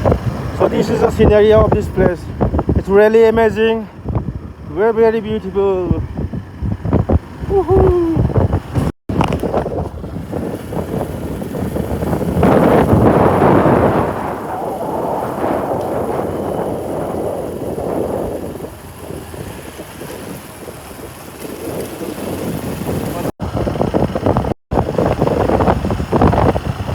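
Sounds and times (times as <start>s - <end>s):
vehicle running noise: 0.0s - 26.9s
wind buffeting microphone: 0.0s - 26.9s.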